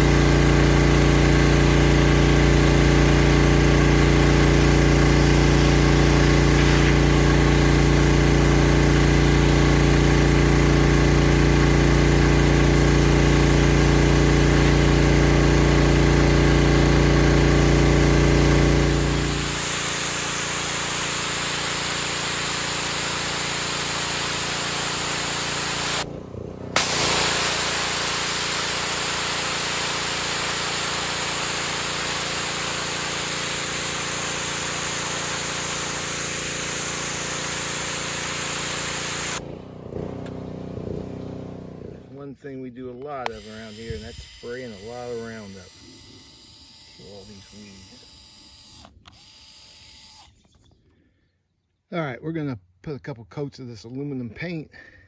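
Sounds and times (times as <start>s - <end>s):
pressure washer engine running: 0.0s - 42.0s, 43.3s - 46.2s
hiss of water spray: 4.4s - 7.6s, 18.9s - 26.0s, 26.8s - 39.4s.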